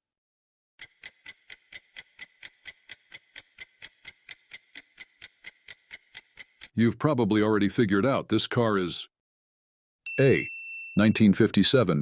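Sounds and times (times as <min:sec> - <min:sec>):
clock ticking: 0:00.8 - 0:06.8.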